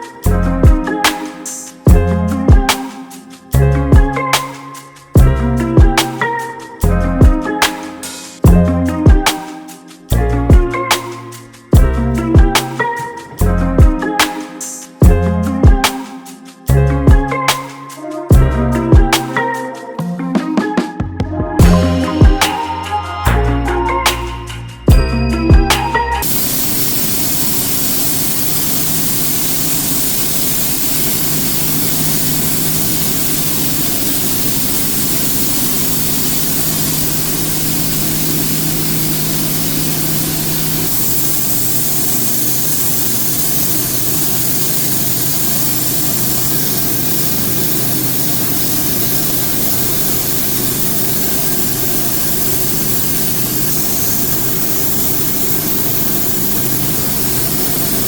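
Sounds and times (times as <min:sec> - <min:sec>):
machine hissing: 0:25.7 - 0:58.0.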